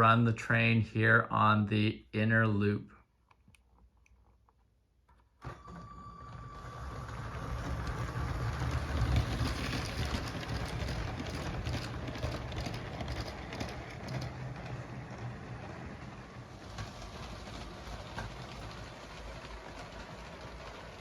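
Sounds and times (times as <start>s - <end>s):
small clicks of train on track: 5.4s - 21.0s
toy train motor and wheels rumbling: 5.6s - 21.0s.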